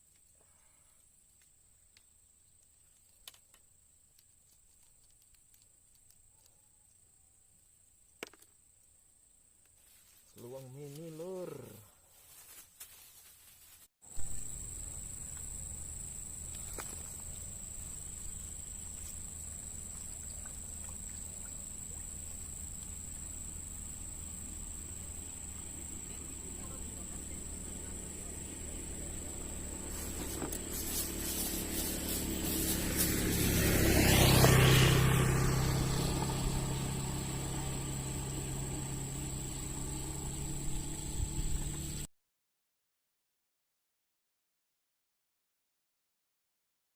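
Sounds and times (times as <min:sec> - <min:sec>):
insects trilling: 0:14.1 - 0:42.1
low steady rumble: 0:14.2 - 0:33.8, 0:35.1 - 0:42.1
motor vehicle passing: 0:14.3 - 0:42.1.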